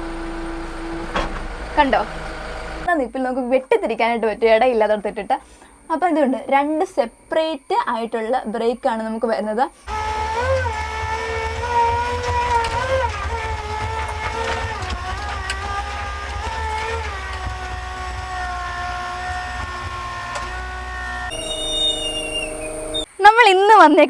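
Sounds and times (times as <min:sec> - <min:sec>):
backhoe diesel engine rumbling: 0:00.0 - 0:02.9, 0:09.9 - 0:23.1.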